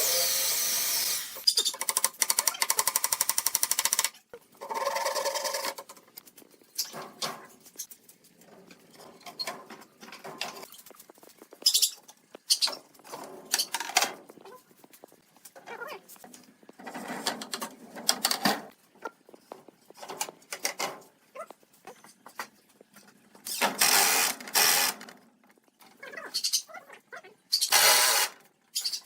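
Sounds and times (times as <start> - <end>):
knocks and scrapes of wood: 6.8 - 18.8
power tool chattering: 23.8 - 25.0, 27.7 - 28.3.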